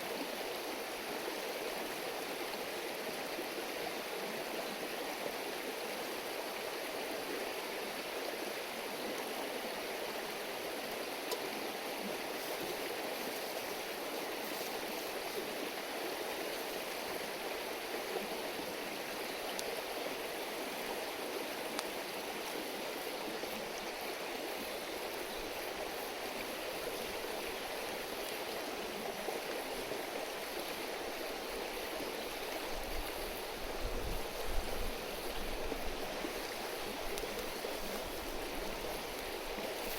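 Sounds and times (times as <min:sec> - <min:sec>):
river water rushing: 0:00.0 - 0:39.9
faint ticks: 0:11.2 - 0:11.5, 0:19.5 - 0:19.8, 0:21.7 - 0:22.6, 0:36.9 - 0:39.9.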